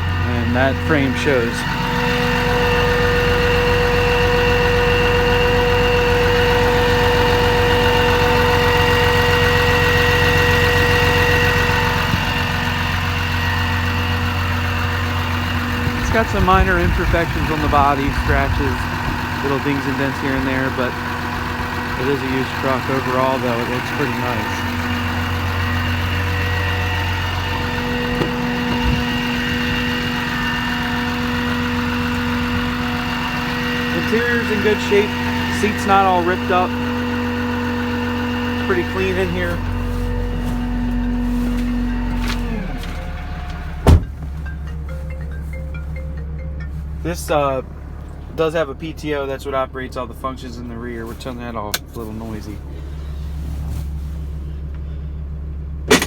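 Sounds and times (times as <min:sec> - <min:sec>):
steady whine: 0:00.0 - 0:51.0
diesel engine idling: 0:00.0 - 0:56.0
small thump: 0:43.8 - 0:44.4.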